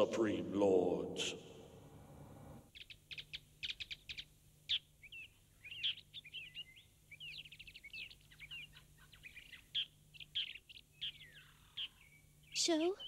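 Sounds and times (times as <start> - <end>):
birds chirping and twittering: 2.6 - 13.0.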